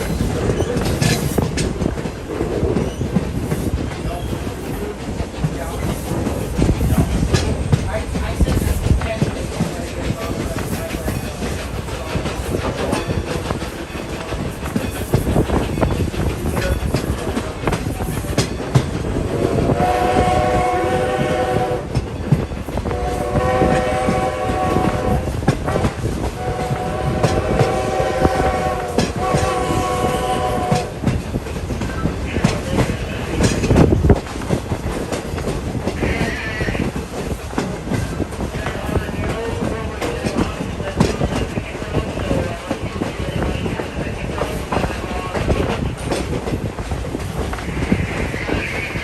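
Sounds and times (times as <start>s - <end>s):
train coach rolling on rails: 0.0s - 49.0s
steam locomotive whistle blasts: 19.6s - 21.9s, 22.9s - 25.4s, 26.4s - 30.9s.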